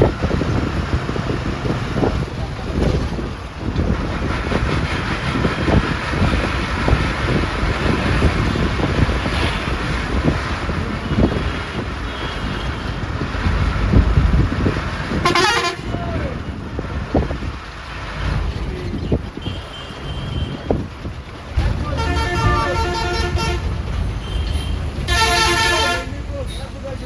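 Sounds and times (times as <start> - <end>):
bus engine and road rumble: 0.0 - 27.0
warbling horn blast: 15.2 - 16.0.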